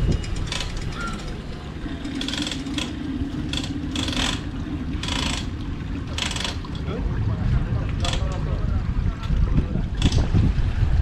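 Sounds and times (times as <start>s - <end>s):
winch ratchet clicking: 0.0s - 6.8s, 8.0s - 8.4s, 10.0s - 10.3s
low steady hum: 0.0s - 11.0s.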